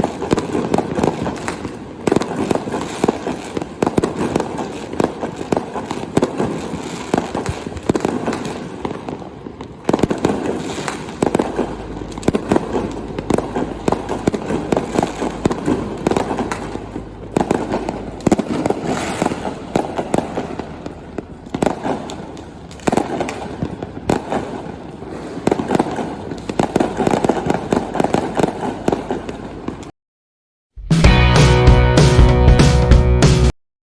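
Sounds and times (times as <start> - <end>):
fireworks bangs and crackling: 0.0 - 29.9
loud firework bursts: 0.0 - 29.9.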